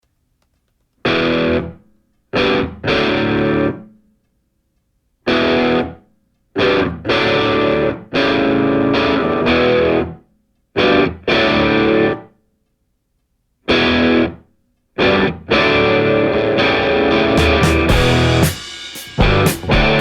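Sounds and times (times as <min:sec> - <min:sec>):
distorted electric guitar chords: 0:01.1 - 0:01.8, 0:02.4 - 0:03.8, 0:05.3 - 0:06.0, 0:06.6 - 0:10.2, 0:10.8 - 0:12.3, 0:13.7 - 0:14.4, 0:15.0 - 0:20.0.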